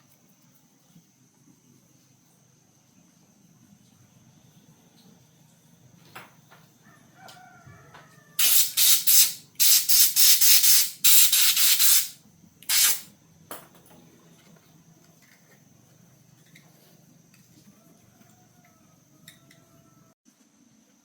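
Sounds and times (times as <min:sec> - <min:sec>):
pressurized jet spray hissing: 0:08.4 - 0:13.1.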